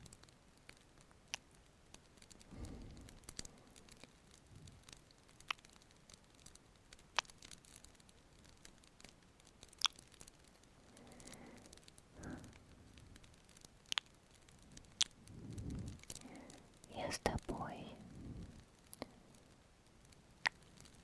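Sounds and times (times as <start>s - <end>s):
faint crackling fireplace: 0.0s - 21.0s
kissing and wet mouth sounds: 7.1s - 7.4s, 9.7s - 10.1s, 13.9s - 14.1s, 14.9s - 15.2s.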